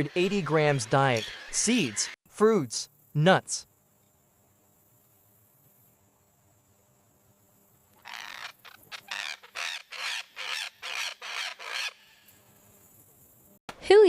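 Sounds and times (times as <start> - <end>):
parrot squawks: 8.0 - 12.2.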